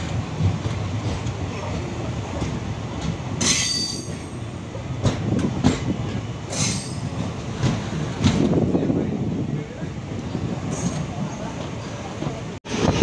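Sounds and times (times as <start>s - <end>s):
wheels clacking over rail joints: 0.0s - 8.7s
train wheels rumbling on rails: 0.0s - 13.0s.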